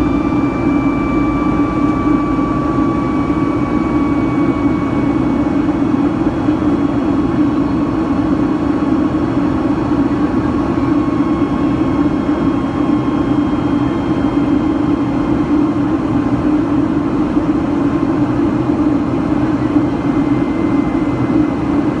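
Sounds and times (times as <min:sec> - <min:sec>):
thin whining tones: 0:00.0 - 0:06.6
jet engines roaring in cabin: 0:00.0 - 0:22.0.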